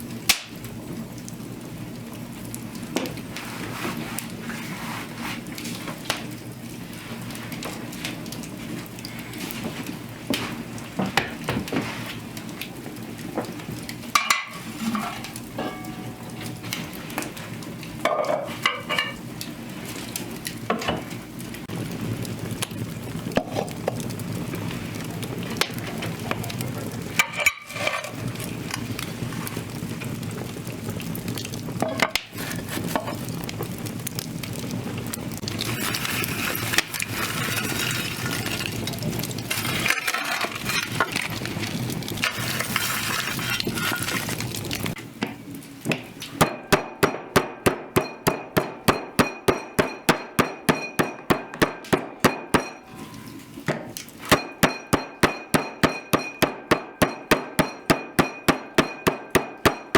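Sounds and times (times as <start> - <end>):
cooking hiss: 0.0 - 59.9
cookware clinks and scrapes: 14.2 - 16.6, 18.1 - 19.2, 27.2 - 28.2, 35.6 - 41.5, 42.2 - 44.4.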